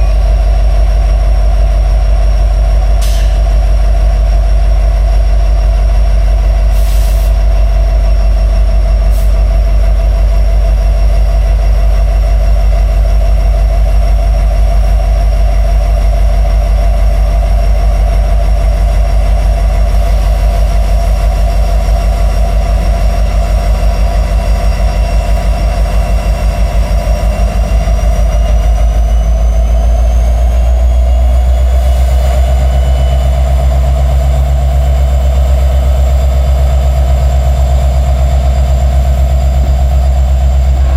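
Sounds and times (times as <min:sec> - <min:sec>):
freight train rumbling on rails: 0:00.0 - 0:40.9
high wheel squeal: 0:40.7 - 0:40.9.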